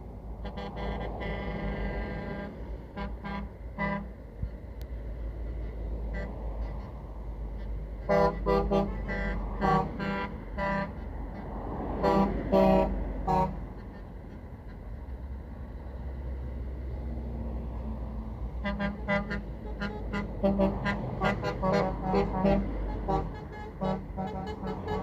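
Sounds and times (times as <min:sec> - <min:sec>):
lorries rumbling past: 0:00.0 - 0:25.0
truck horn toots: 0:00.4 - 0:04.6, 0:05.5 - 0:07.0, 0:07.6 - 0:14.1, 0:18.5 - 0:25.0.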